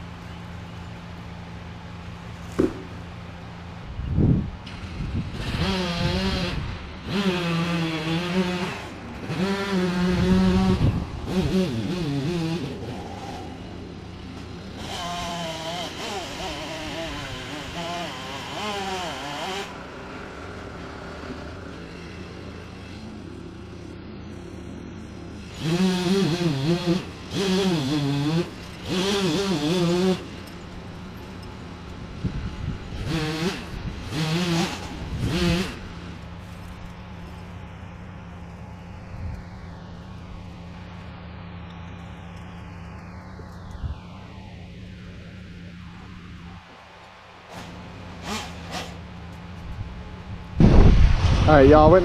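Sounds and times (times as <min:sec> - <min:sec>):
chainsaw engine revving: 0:04.7 - 0:23.9, 0:25.3 - 0:31.5, 0:32.8 - 0:37.0, 0:47.5 - 0:49.4.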